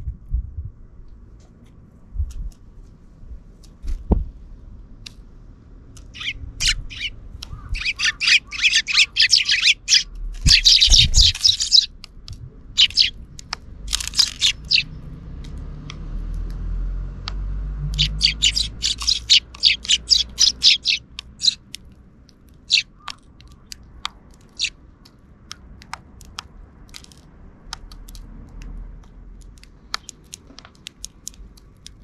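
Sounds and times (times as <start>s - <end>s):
sparrows chirping: 6.0s - 15.2s, 17.8s - 24.9s, 29.8s - 32.0s.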